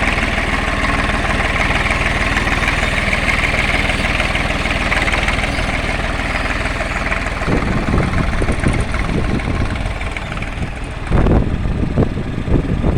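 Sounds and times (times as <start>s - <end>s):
irregular engine thumps: 0.0s - 12.9s
tractor engine idling: 0.0s - 12.9s.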